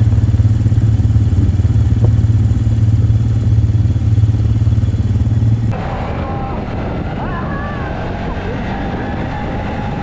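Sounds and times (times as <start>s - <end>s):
quad bike engine running: 0.0s - 5.8s.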